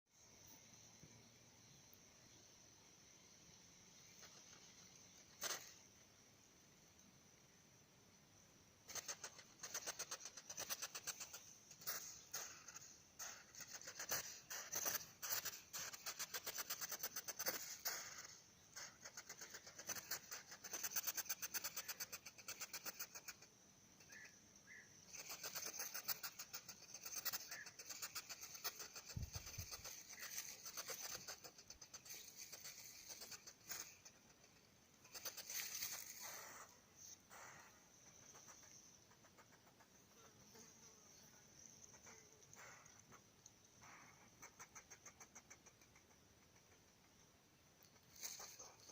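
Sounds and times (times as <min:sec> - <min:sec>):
hedgehog snuffling and huffing: 0:05.4 - 0:05.8, 0:08.9 - 0:23.5, 0:25.1 - 0:40.6, 0:41.8 - 0:47.1, 0:47.8 - 0:48.9.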